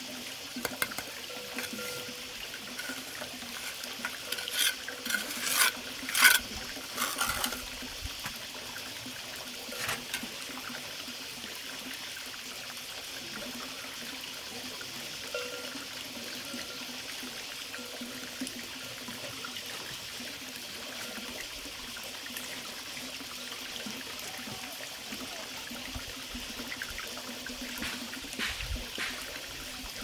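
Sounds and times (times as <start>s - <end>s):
water trickling: 0.0s - 14.5s
splashing or scraping sounds: 0.6s - 8.4s, 9.7s - 10.3s.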